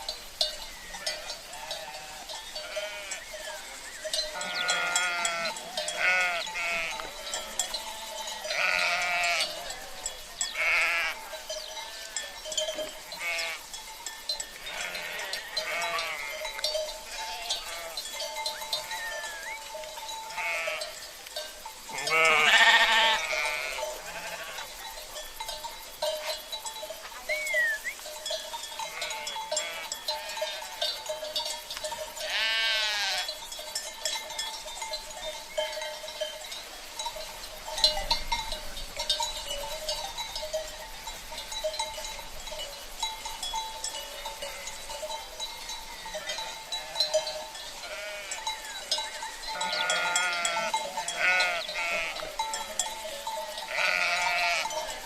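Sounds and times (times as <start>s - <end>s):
livestock bells clinking: 0.0s - 55.0s
sheep bleating: 1.0s - 3.2s, 4.3s - 11.2s, 13.1s - 13.6s, 14.6s - 16.4s, 17.1s - 18.1s, 20.2s - 21.0s, 21.9s - 24.7s, 28.8s - 30.7s, 32.2s - 33.3s, 47.8s - 48.5s, 49.5s - 52.5s, 53.2s - 54.8s.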